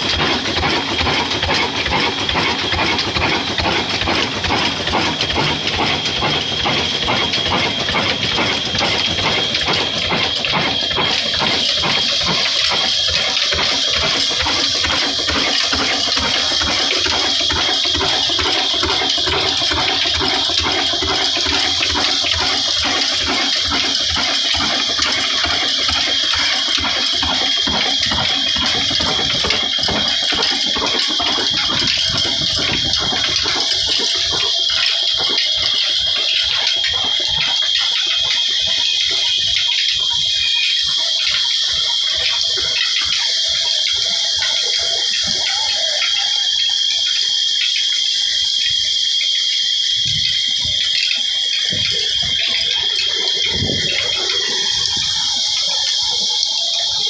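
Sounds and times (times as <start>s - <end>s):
diesel engine running: 0.0s - 37.4s.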